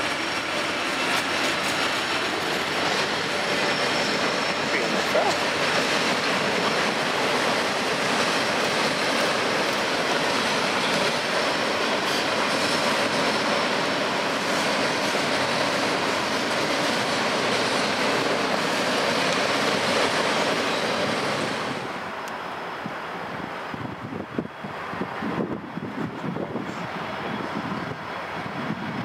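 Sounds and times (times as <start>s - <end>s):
steel wheels on rail: 0.0s - 29.0s.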